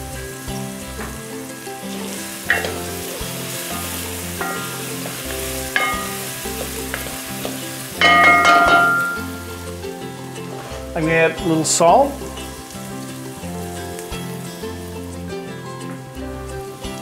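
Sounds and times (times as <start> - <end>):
vegetables sizzling in oil: 0.0 - 17.0
wooden spoon knocking on pot: 2.5 - 3.1, 4.4 - 9.4.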